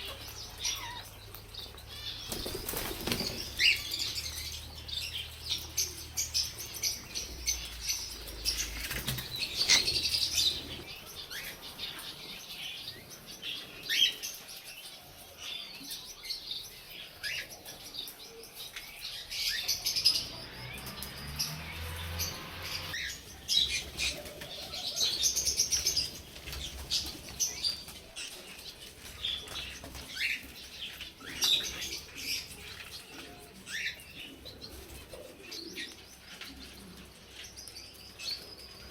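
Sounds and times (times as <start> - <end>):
budgerigars chirping: 0.0 - 14.2, 19.4 - 35.9
wing flutters: 2.2 - 4.6.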